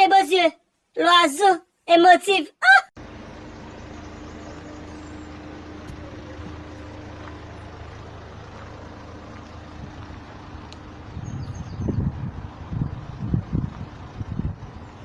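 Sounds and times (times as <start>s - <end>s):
vehicle engine humming: 3.0s - 15.0s.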